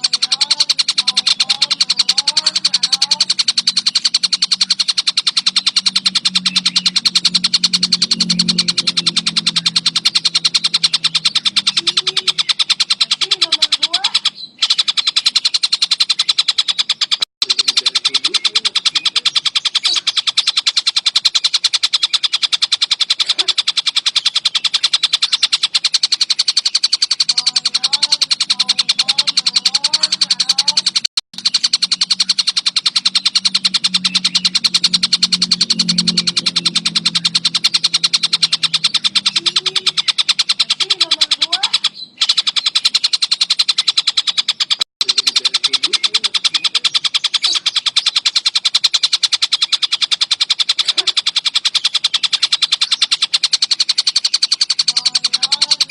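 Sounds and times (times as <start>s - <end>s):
kingfisher rattling trill: 0.0s - 55.9s.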